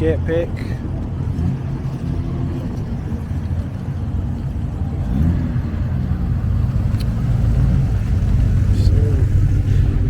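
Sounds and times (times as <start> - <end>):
car engine running: 5.0 - 10.0.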